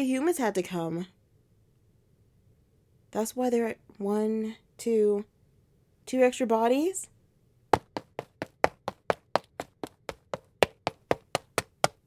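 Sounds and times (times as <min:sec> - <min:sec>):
quick sharp footsteps: 0:07.8 - 0:12.0.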